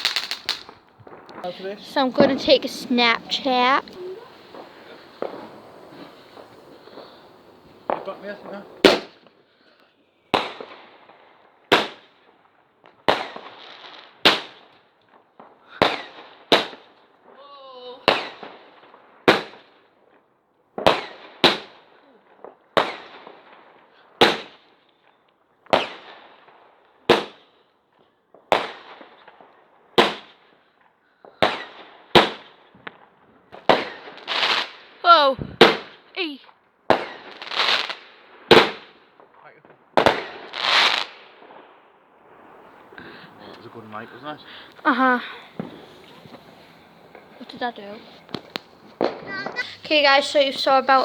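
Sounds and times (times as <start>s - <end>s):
fireworks banging: 0.0s - 9.4s, 10.3s - 12.0s, 15.4s - 16.8s, 31.4s - 36.1s, 36.9s - 51.0s.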